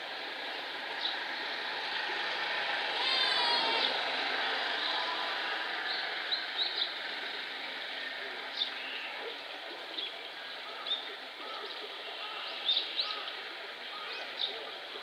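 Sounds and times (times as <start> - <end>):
outdoor background hiss: 0.0 - 15.0
small birds chirping: 8.2 - 15.0.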